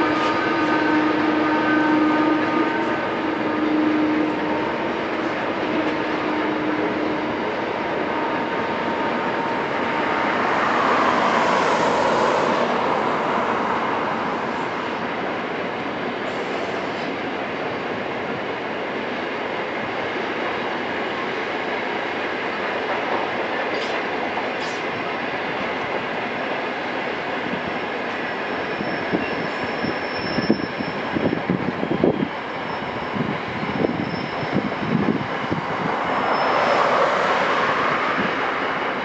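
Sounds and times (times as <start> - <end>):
freight train rumbling past: 0.0 - 39.0
faint high wheel squeal: 28.1 - 31.5, 32.2 - 35.0, 36.2 - 37.1.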